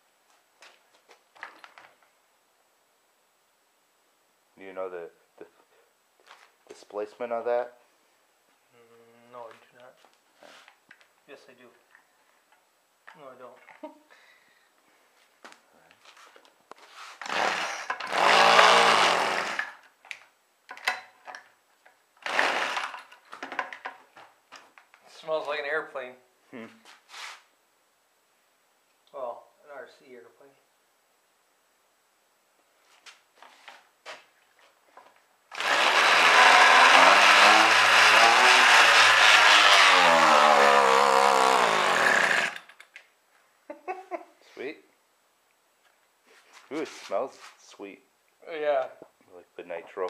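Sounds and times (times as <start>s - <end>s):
string trimmer pull-starting: 17.2s - 19.8s, 22.2s - 23.2s, 35.5s - 42.8s
weed eater engine running: 17.2s - 19.8s, 22.2s - 23.0s, 35.5s - 42.6s.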